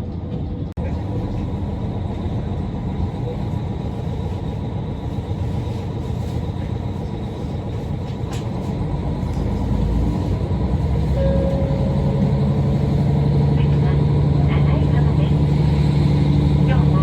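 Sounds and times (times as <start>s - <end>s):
diesel railcar rumbling: 0.0s - 17.0s
low hum: 9.2s - 17.0s.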